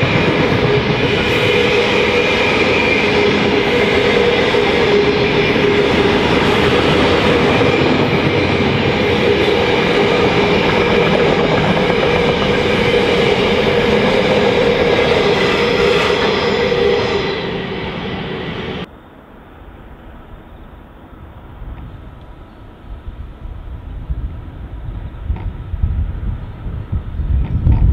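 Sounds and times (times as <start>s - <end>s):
steady whine: 0.0s - 18.9s
freight train rumbling past: 0.0s - 27.9s.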